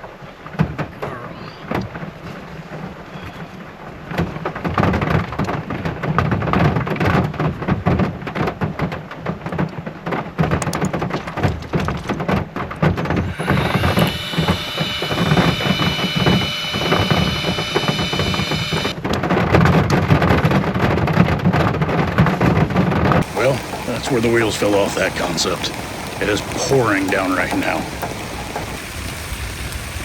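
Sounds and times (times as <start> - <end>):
steady high tones: 13.3 - 19.0, 23.2 - 29.4
heavy rain pouring: 23.2 - 30.0.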